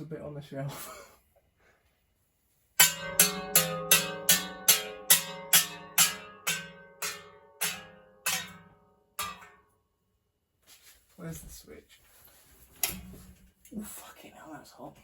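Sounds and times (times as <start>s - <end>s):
ringing pitched strikes: 2.8s - 9.6s.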